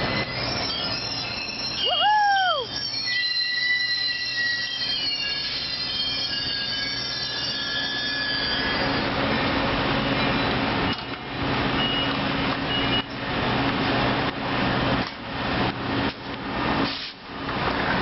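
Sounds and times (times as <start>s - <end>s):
train wheel squeal: 0.0s - 13.2s
train cars rumbling past: 0.0s - 18.0s.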